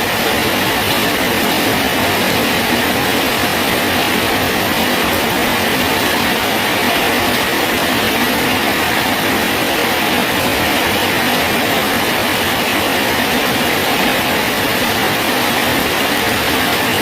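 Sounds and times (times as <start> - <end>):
rain falling on a bridge: 0.0 - 17.0.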